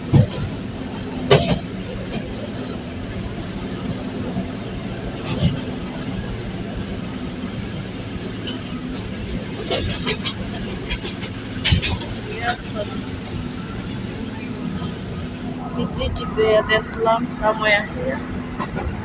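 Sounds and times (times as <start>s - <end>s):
train rumbling inside coach: 0.0s - 19.0s.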